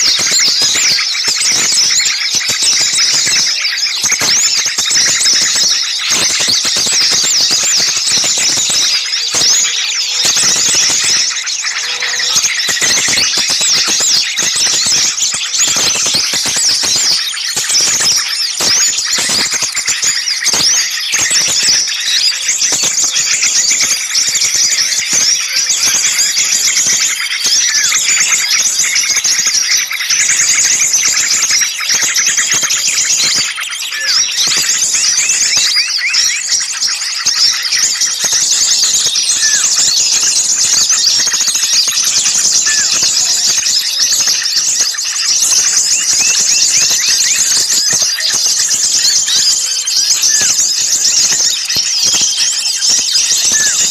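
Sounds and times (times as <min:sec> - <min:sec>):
small songbirds chirping: 0:00.0 - 0:53.9.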